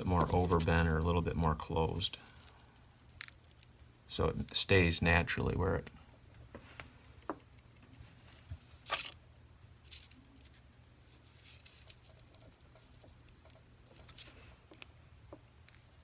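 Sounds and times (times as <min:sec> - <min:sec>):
scratchy rustles: 0:00.0 - 0:01.2, 0:09.9 - 0:13.0.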